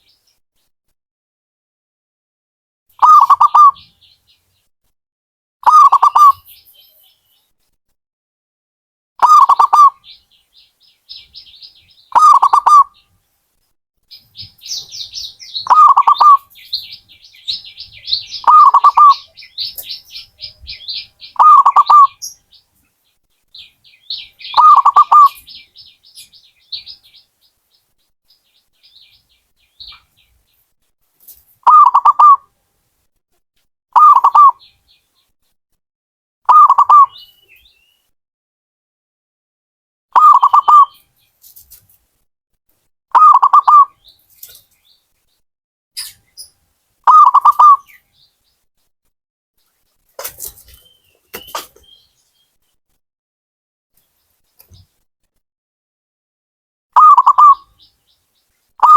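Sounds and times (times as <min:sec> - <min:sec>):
dove cooing: 0:03.0 - 0:03.8, 0:12.1 - 0:12.9, 0:15.6 - 0:16.9, 0:17.5 - 0:20.0, 0:20.7 - 0:22.2, 0:24.6 - 0:25.4, 0:31.7 - 0:32.4, 0:34.0 - 0:34.6, 0:43.2 - 0:43.9, 0:47.1 - 0:47.8, 0:57.0 - 0:57.6
small bird chirping: 0:03.0 - 0:04.7, 0:05.6 - 0:07.5, 0:09.2 - 0:13.2, 0:14.1 - 0:30.7, 0:31.3 - 0:32.5, 0:34.0 - 0:35.3, 0:36.5 - 0:38.1, 0:40.2 - 0:42.0, 0:43.2 - 0:45.4, 0:46.0 - 0:48.6, 0:49.6 - 0:52.8, 0:57.0 - 0:58.9.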